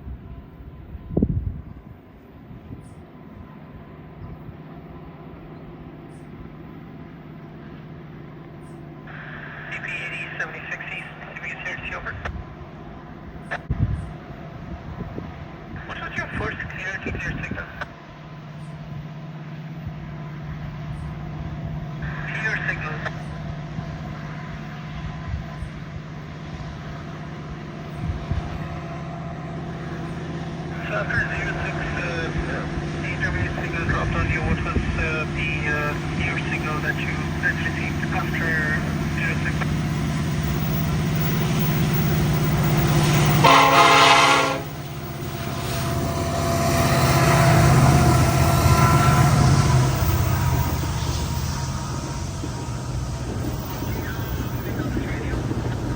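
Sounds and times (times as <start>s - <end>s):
diesel locomotive running by: 0.0s - 55.9s
train rumbling past: 0.0s - 55.9s
multi-note air horn blast: 43.4s - 44.8s.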